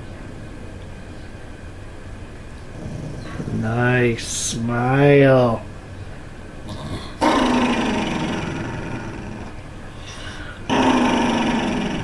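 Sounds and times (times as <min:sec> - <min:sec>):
dog growling: 0:02.7 - 0:03.7, 0:06.6 - 0:09.6, 0:10.7 - 0:12.0.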